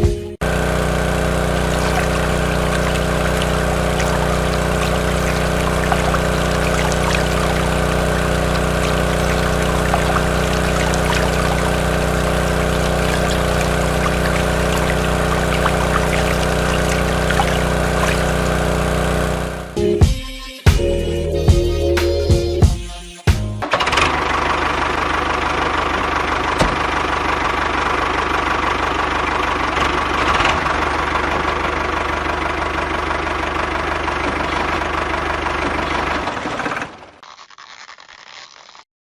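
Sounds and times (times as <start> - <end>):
small electric motor humming: 0.4 - 19.8
water pouring and trickling: 1.0 - 19.6.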